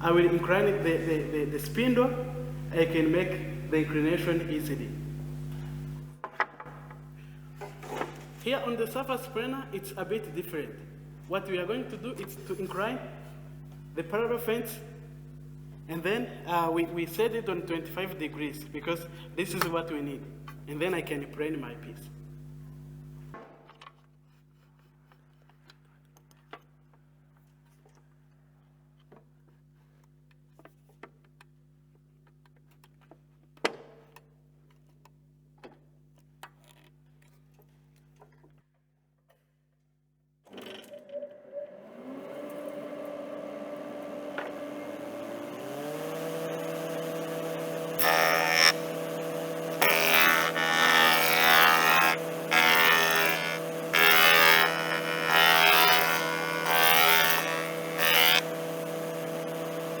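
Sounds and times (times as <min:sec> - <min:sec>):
planer motor running: 0:00.0 - 0:06.2, 0:41.4 - 1:00.0
faint hum: 0:00.0 - 0:30.7, 0:41.8 - 1:00.0
planer cutting wood: 0:41.4 - 1:00.0.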